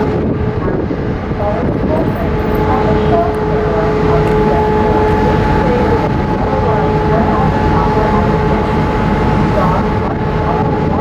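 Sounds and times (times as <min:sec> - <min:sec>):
ferry engines rumbling: 0:00.0 - 0:11.0
two-note hum: 0:00.0 - 0:11.0.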